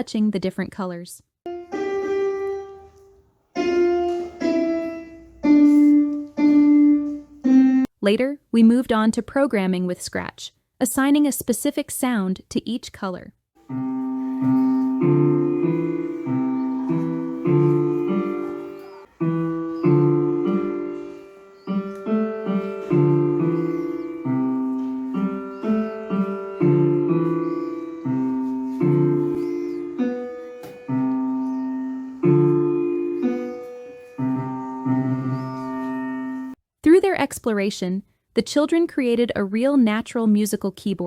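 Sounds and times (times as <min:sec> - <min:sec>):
piano notes in a simple melody: 0:01.5 - 0:07.9, 0:13.6 - 0:36.6.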